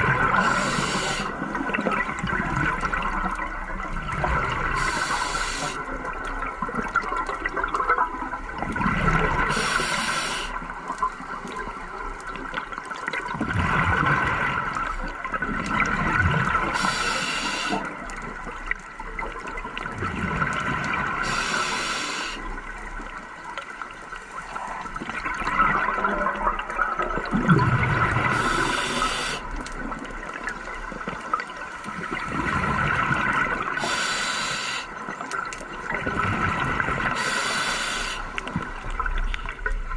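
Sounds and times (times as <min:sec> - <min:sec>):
exhaled bubbles underwater: 0:00.0 - 0:39.9
regulator valve hiss: 0:00.4 - 0:01.4, 0:04.8 - 0:05.8, 0:09.5 - 0:10.6, 0:16.7 - 0:17.9, 0:21.2 - 0:22.5, 0:28.3 - 0:29.5, 0:33.8 - 0:34.9, 0:37.2 - 0:38.4.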